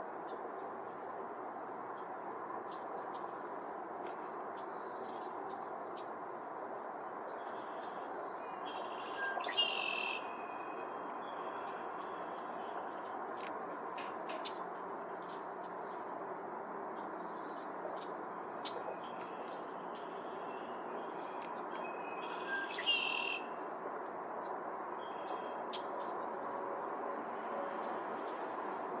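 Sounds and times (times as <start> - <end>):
birds chirping: 17.3 - 23.5.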